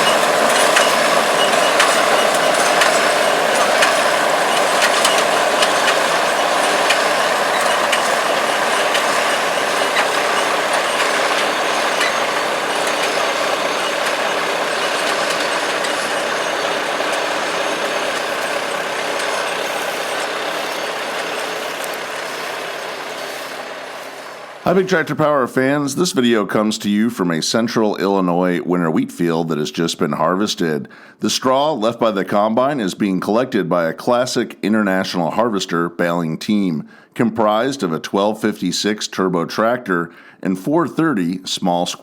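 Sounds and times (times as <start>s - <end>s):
baler working: 0.0s - 26.6s
tractor diesel engine under load: 0.0s - 27.0s.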